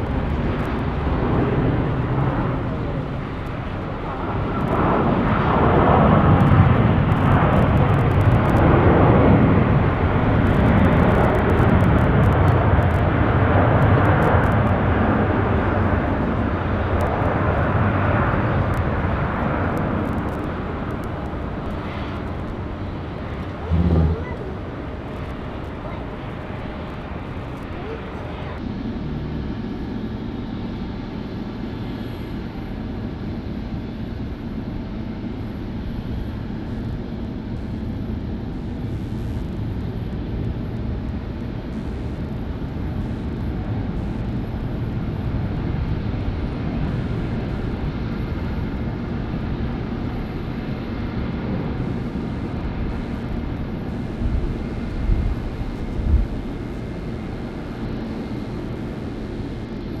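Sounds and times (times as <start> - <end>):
jet airliner engines rumbling: 0.0 - 60.0
short low thumps: 23.5 - 24.6.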